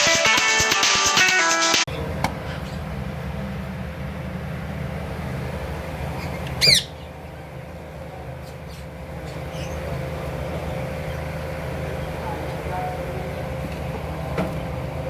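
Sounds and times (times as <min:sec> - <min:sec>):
parrot squawk: 0:06.2 - 0:07.1.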